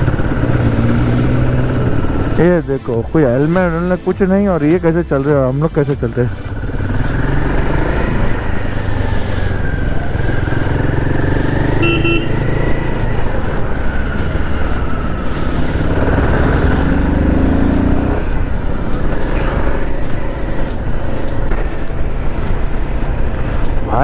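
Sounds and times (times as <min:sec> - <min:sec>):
motorcycle engine running: 0:00.0 - 0:24.0
road and wind rush: 0:00.0 - 0:24.0
vehicle horn toot: 0:11.6 - 0:12.7.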